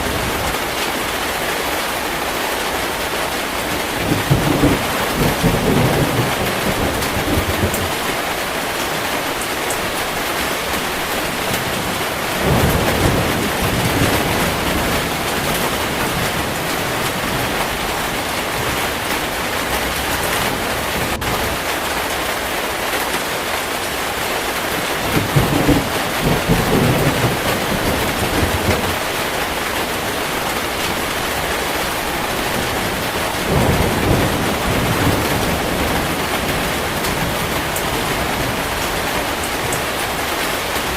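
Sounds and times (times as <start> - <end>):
heavy rain falling: 0.0 - 40.9
thunder rolling: 3.7 - 21.8, 24.6 - 40.9.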